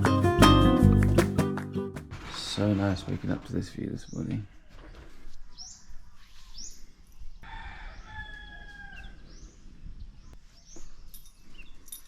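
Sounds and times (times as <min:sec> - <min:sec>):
small birds chirping: 0:03.6 - 0:12.0
rooster crowing: 0:07.4 - 0:09.3.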